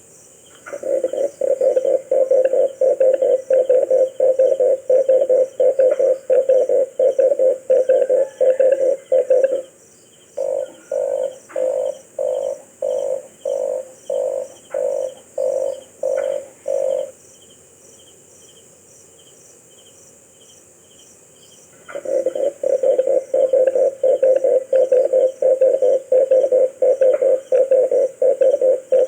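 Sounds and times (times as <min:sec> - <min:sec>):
dove cooing: 0:00.7 - 0:09.8, 0:10.4 - 0:17.2, 0:21.9 - 0:29.0.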